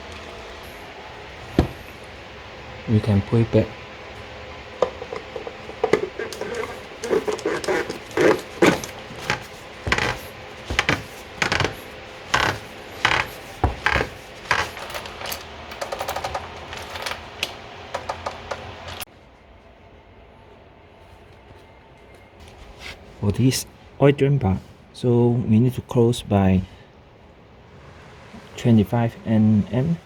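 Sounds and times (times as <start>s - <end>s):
metal tools clinking: 14.5s - 19.0s.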